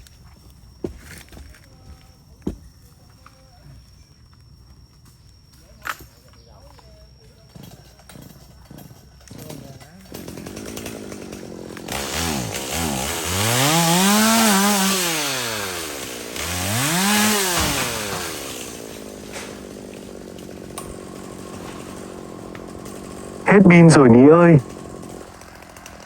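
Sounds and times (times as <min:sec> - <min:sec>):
chainsaw engine revving and idling: 0:07.6 - 0:26.0.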